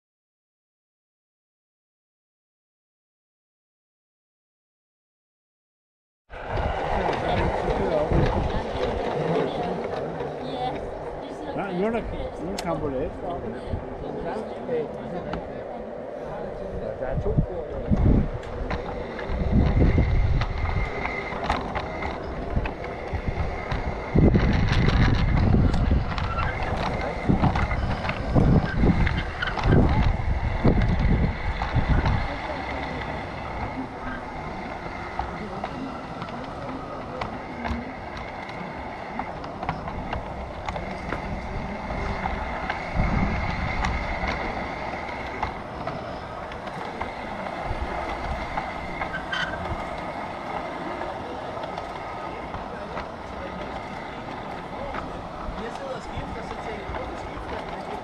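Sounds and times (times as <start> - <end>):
wind buffeting microphone: 6.3 - 58.0
model train whine: 6.4 - 58.0
low rumble: 13.0 - 50.6
wheel clicks on rail: 17.9 - 58.0.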